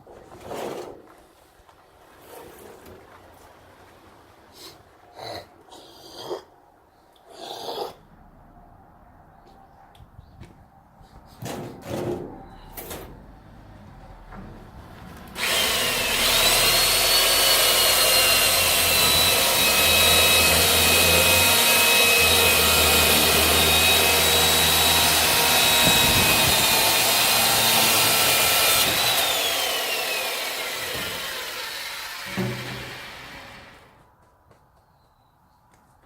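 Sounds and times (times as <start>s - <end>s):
electric chainsaw cutting wood: 15.4s - 34.0s.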